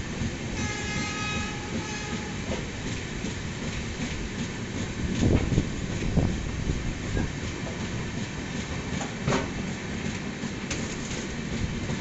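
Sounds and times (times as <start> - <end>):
train wheels rumbling and clacking: 0.0 - 12.0
train horn: 0.6 - 2.6.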